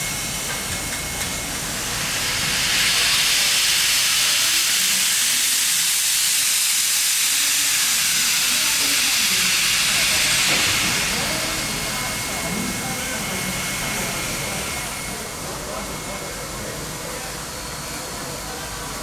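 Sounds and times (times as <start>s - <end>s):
steam locomotive hissing steam: 0.0s - 19.0s.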